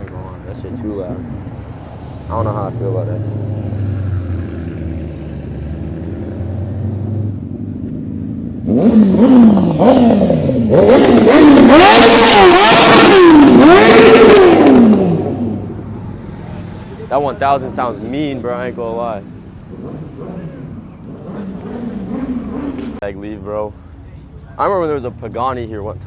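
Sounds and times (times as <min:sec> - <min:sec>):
engine idling and revving: 0:00.0 - 0:23.1.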